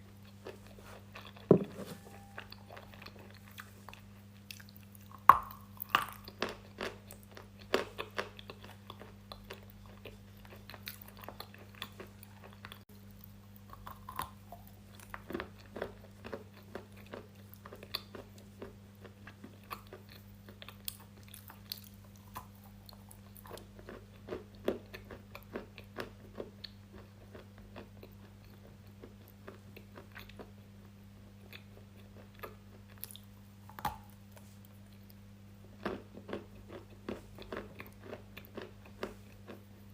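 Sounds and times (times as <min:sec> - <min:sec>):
steady low hum: 0:00.0 - 0:26.0
chewing crunchy food: 0:00.0 - 0:39.9.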